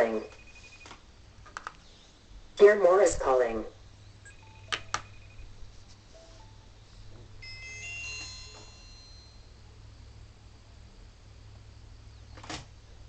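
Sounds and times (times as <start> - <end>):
electronic ringtone chime: 4.3 - 5.6, 6.2 - 6.7, 7.4 - 9.6.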